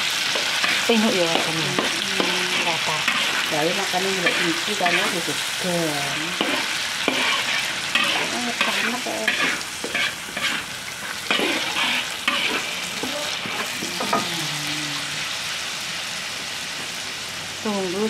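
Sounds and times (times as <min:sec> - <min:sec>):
paste sizzling in hot oil: 0:00.0 - 0:17.6
spoon scraping a wok: 0:00.1 - 0:05.6, 0:06.3 - 0:14.4.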